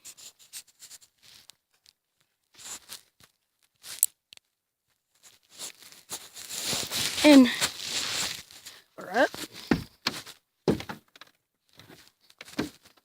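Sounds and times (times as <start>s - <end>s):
soft rustles and crunches: 0.0s - 10.4s.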